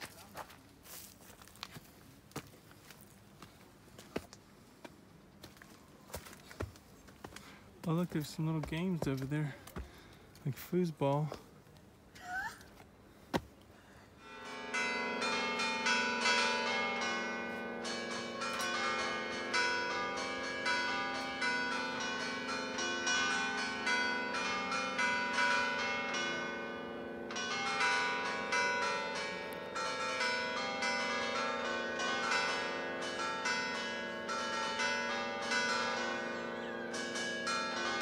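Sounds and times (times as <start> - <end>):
church bells pealing: 14.2 - 38.0.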